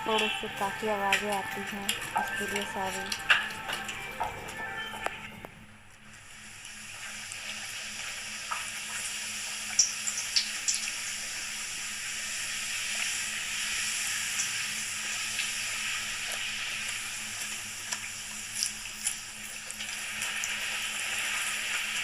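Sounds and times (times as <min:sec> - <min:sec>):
steady hiss: 0:06.0 - 0:22.0.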